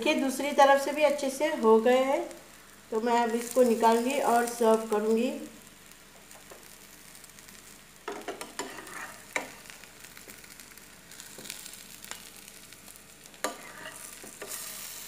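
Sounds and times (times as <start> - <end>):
food sizzling in oil: 0.0 - 15.0
spatula scraping and knocking pan: 8.1 - 9.6, 13.4 - 14.8.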